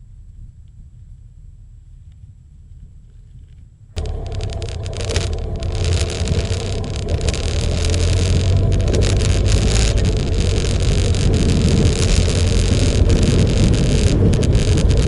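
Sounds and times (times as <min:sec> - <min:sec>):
wind and road noise: 0:00.0 - 0:15.0
motorcycle engine rumble: 0:04.0 - 0:15.0.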